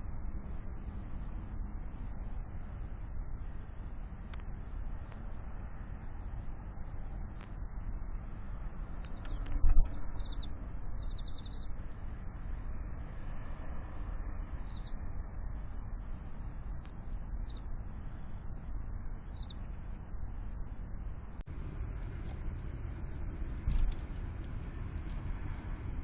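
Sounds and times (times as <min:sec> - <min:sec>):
small birds chirping: 0:00.0 - 0:26.0
bird trill: 0:09.1 - 0:15.8, 0:17.0 - 0:18.4, 0:19.1 - 0:20.0.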